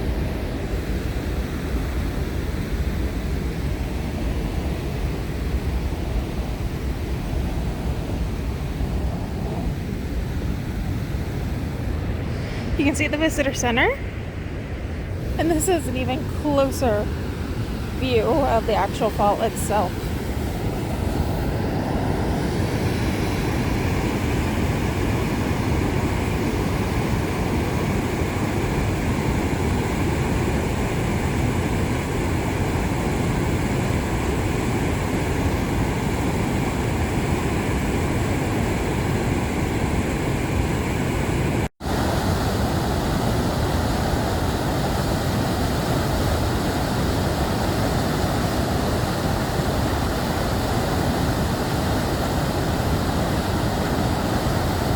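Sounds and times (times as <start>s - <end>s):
waterfall roaring: 11.7s - 13.9s, 15.2s - 27.5s.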